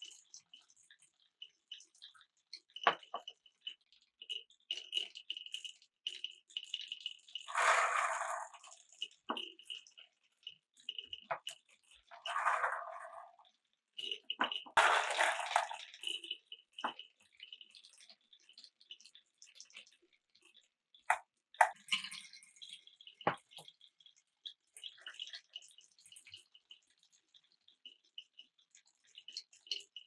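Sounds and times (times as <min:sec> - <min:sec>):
marbles rolling through wooden track: 0:07.5 - 0:09.5, 0:12.0 - 0:13.4, 0:14.4 - 0:17.0
marbles knocking onto blocks: 0:14.7 - 0:15.8.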